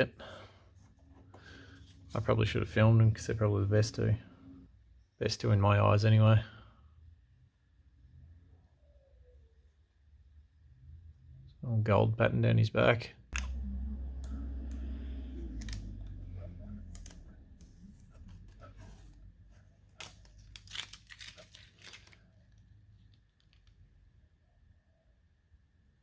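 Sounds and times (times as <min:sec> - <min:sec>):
clicks and crinkling rustles: 0:15.5 - 0:23.9.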